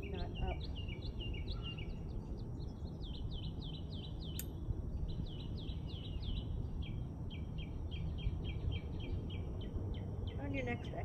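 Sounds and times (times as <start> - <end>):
low outdoor rumble: 0.0 - 11.0
songbird chirping: 0.0 - 11.0.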